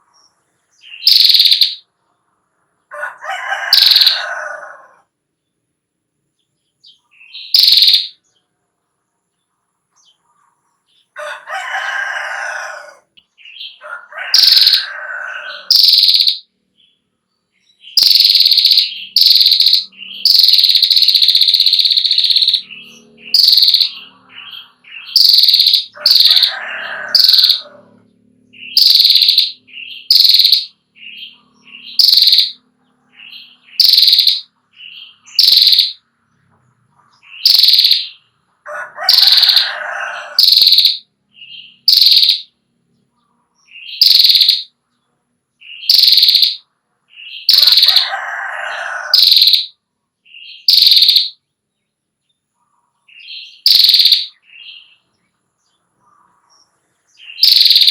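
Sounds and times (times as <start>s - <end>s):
small bird calling high notes: 0.9s - 1.9s, 3.6s - 4.6s, 7.2s - 8.2s, 13.7s - 16.5s, 17.9s - 27.7s, 28.6s - 36.0s, 37.3s - 38.2s, 39.0s - 42.6s, 43.8s - 44.7s, 45.6s - 46.6s, 47.2s - 49.8s, 50.4s - 51.4s, 53.2s - 55.0s, 57.2s - 57.9s
rooster crowing: 2.9s - 5.1s, 11.2s - 16.4s, 21.8s - 29.5s, 38.6s - 41.0s, 47.5s - 49.7s.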